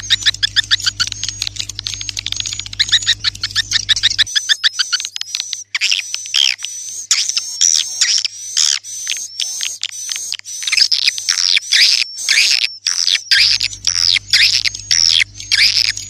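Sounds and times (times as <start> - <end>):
low hum: 0.0 - 4.3, 13.4 - 16.0
swiftlets twittering: 0.0 - 9.8, 10.4 - 16.0.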